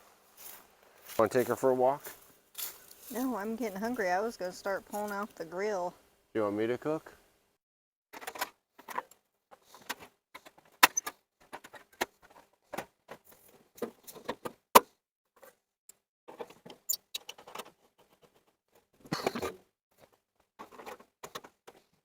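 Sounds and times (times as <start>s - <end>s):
soft rustling: 0.0s - 5.6s.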